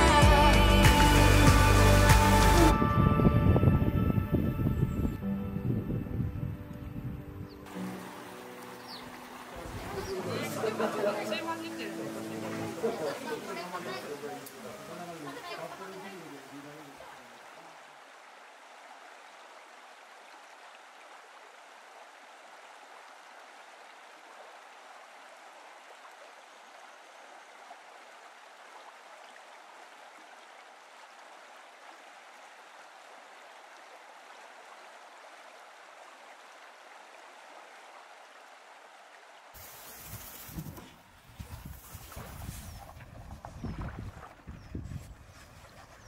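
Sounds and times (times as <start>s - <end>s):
faint flowing water: 0.0s - 46.0s
wind rumbling on microphone: 2.7s - 7.7s, 39.6s - 46.0s.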